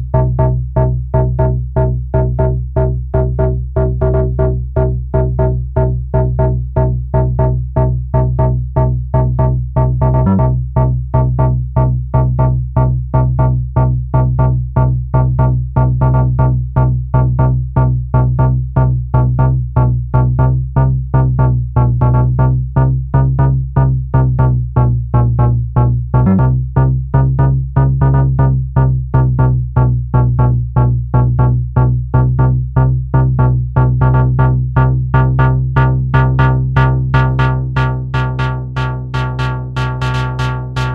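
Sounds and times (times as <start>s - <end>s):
steady synth bass: 0.0s - 40.9s
synthesizer note sequence: 36.1s - 40.9s.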